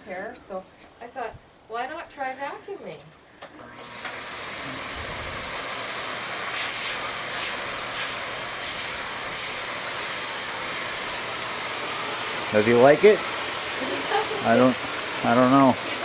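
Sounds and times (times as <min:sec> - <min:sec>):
vacuum cleaner motor: 0:03.6 - 0:16.0.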